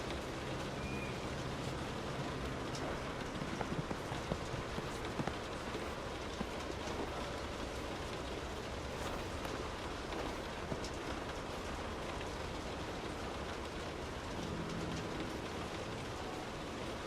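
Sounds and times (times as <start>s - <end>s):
rain heard from indoors: 0.0s - 17.0s
raindrops ticking: 0.0s - 17.0s.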